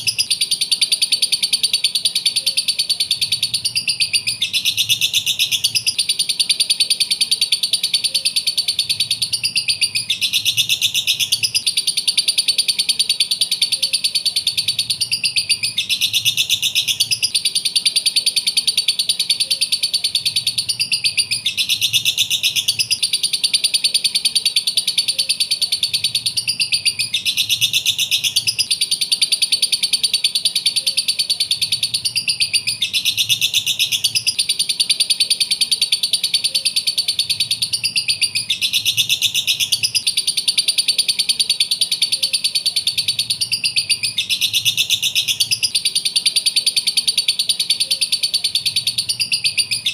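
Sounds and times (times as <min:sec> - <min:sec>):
lovebirds twittering: 0:00.0 - 0:49.9.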